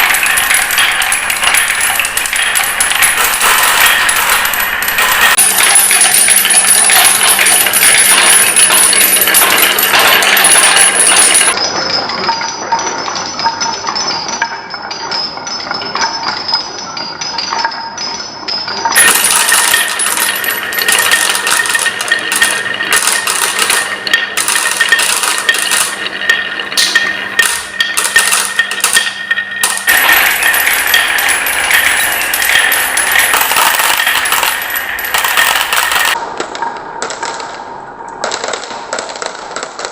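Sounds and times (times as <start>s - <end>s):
marbles rolling down wooden run: 0.0s - 11.6s, 19.0s - 36.2s.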